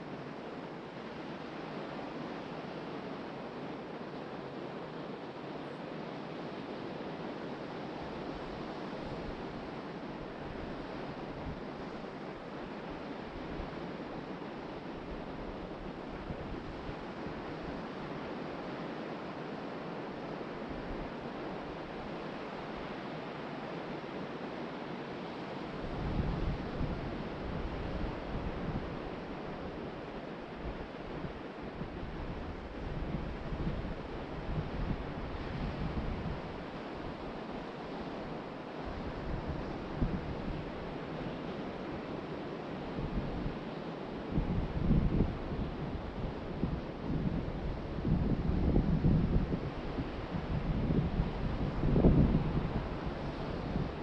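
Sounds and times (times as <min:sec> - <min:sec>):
wind buffeting microphone: 0:44.3 - 0:54.0.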